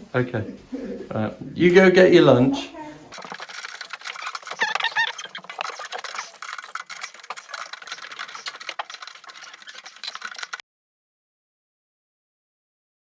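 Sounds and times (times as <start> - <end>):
small hard parts clicking: 3.1 - 10.6.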